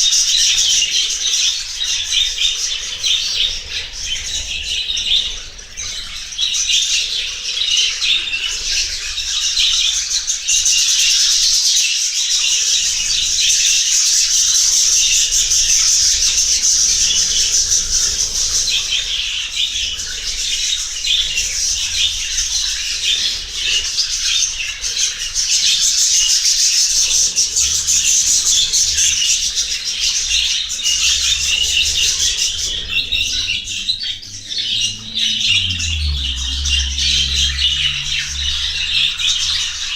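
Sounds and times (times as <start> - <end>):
flock of birds chattering and squawking: 0.0 - 39.9.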